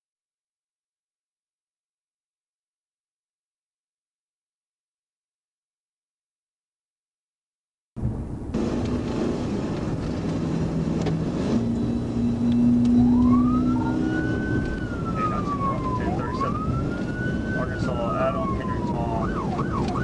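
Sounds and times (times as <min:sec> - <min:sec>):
car engine and road noise: 0:08.0 - 0:20.0
police siren wailing: 0:11.5 - 0:20.0.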